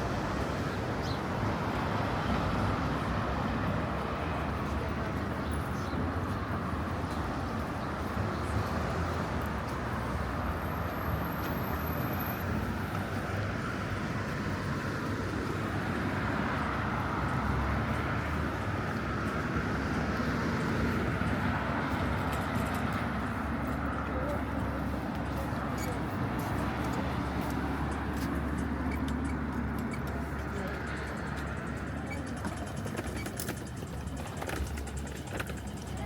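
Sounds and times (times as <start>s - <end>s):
low traffic rumble: 0.0s - 36.0s.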